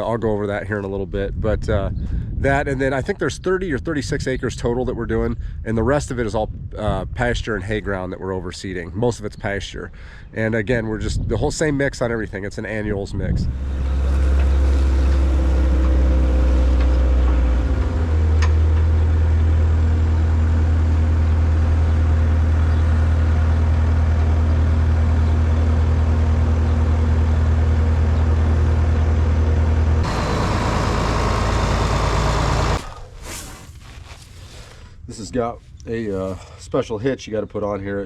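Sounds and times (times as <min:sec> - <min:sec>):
tractor diesel engine running: 0:13.4 - 0:33.3.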